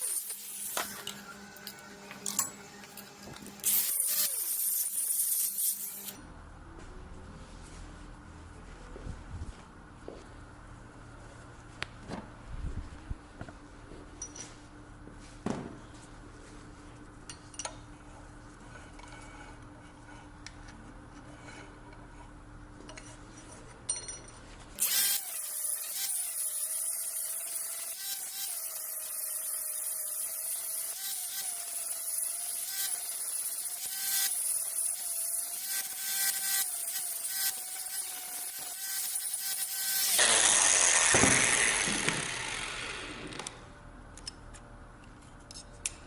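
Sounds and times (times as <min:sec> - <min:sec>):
power tool grinding steel: 0:00.0 - 0:06.2, 0:24.8 - 0:43.5.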